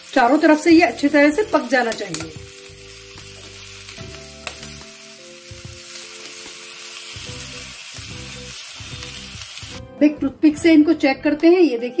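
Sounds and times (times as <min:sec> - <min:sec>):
peppers sizzling in oil: 0:00.0 - 0:09.8
metal tongs turning food: 0:00.1 - 0:09.8
slow background melody: 0:00.3 - 0:12.0.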